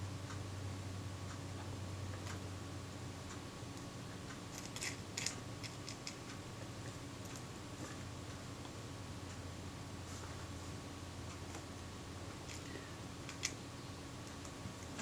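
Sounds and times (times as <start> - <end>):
faint steady hum: 0.0 - 15.0
small tools clicking and tapping: 12.5 - 13.6.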